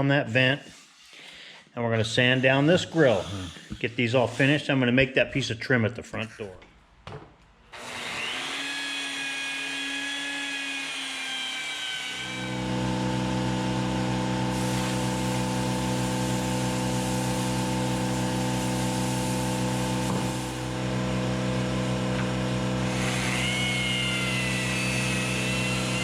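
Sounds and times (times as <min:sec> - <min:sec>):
electric power sander whining: 0:07.8 - 0:26.0
low motor hum: 0:12.5 - 0:26.0.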